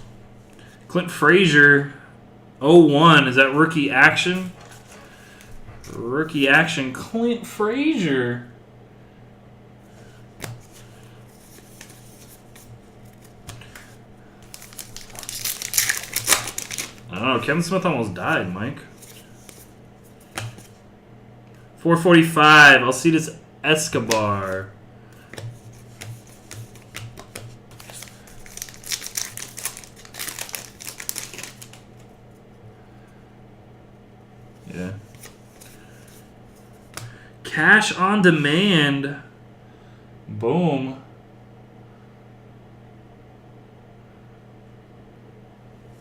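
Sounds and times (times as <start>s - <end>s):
low electrical hum: 0.0s - 46.0s
trading cards clicking and rustling: 10.4s - 20.8s, 23.8s - 32.1s, 35.0s - 37.2s.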